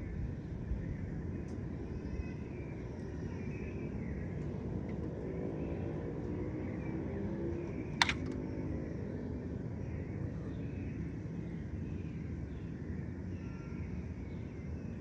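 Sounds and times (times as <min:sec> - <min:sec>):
sharp click: 0:08.0 - 0:08.4.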